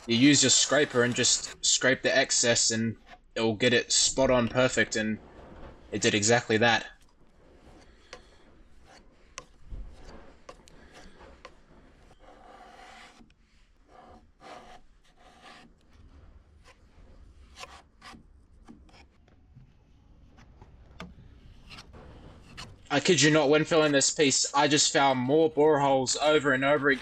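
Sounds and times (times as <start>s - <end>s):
scraper blade scraping wood: 0.0s - 19.2s, 21.6s - 22.9s.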